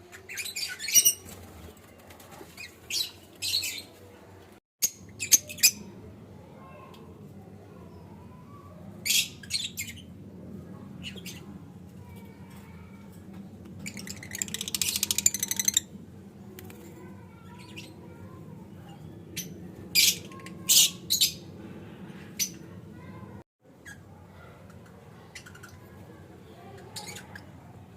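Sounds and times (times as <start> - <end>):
rapid buzzing chatter: 13.7 - 23.4.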